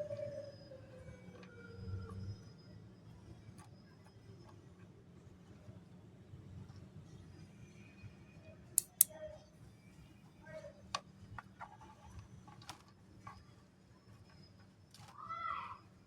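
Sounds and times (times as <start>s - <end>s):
snack pieces clicking: 8.8s - 9.1s.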